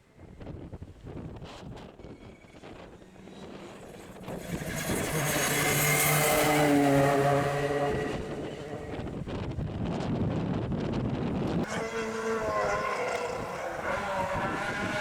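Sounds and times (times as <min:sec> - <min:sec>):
rally car passing at speed: 0:02.9 - 0:09.6, 0:11.6 - 0:15.0.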